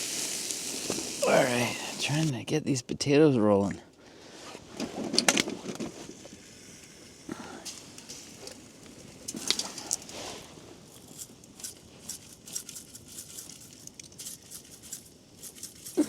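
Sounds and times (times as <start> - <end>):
potatoes sizzling in oil: 0.0 - 2.3, 6.2 - 16.0.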